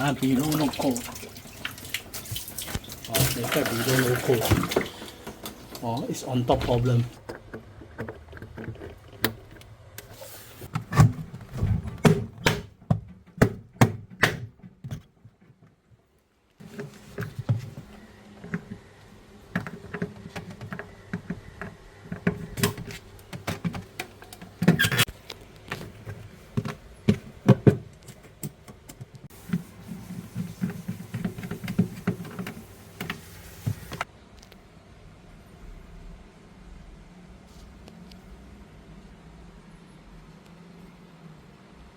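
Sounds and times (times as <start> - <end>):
hands clicking and tapping parts: 19.5 - 29.3.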